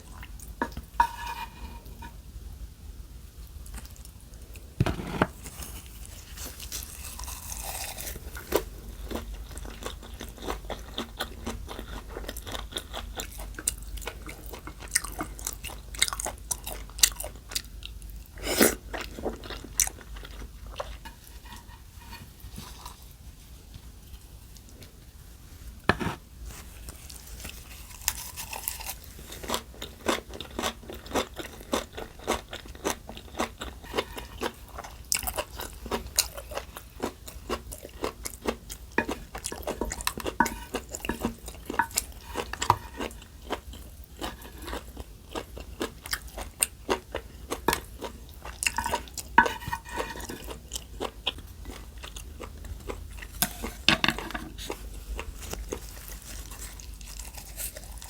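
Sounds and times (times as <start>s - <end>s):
person chewing crunchy food: 3.7s - 23.1s, 26.8s - 58.0s.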